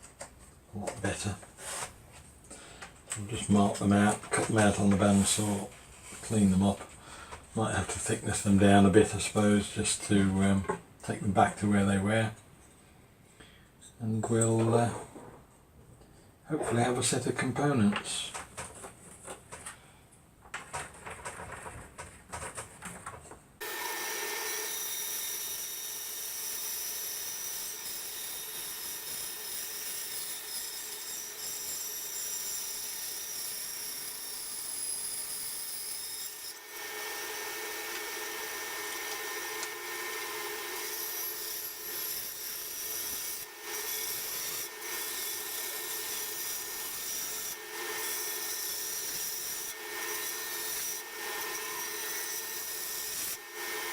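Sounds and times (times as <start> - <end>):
bandsaw cutting wood: 23.6 - 53.9.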